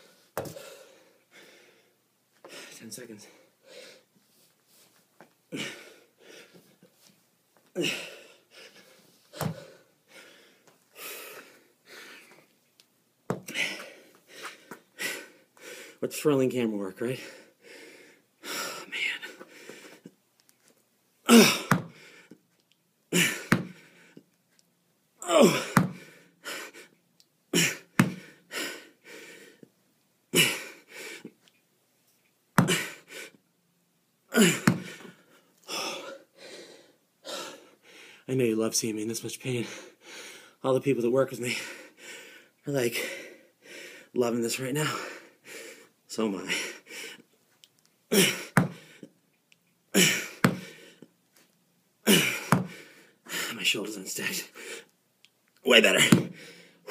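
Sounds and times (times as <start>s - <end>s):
man breathing hard: 0.0s - 4.1s, 5.5s - 6.8s, 7.8s - 12.5s, 13.4s - 16.0s, 17.1s - 20.1s, 21.3s - 22.4s, 23.1s - 24.3s, 25.3s - 29.7s, 30.4s - 31.4s, 32.6s - 33.4s, 34.3s - 38.3s, 39.6s - 40.6s, 41.5s - 44.2s, 44.8s - 47.3s, 50.0s - 51.1s, 52.1s - 53.6s, 54.2s - 54.9s, 56.0s - 56.9s.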